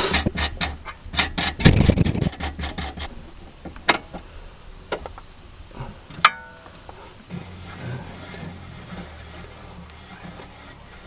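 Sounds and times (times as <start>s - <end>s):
steady low hum: 0.0s - 11.0s
hand tools clinking on metal: 6.2s - 6.7s.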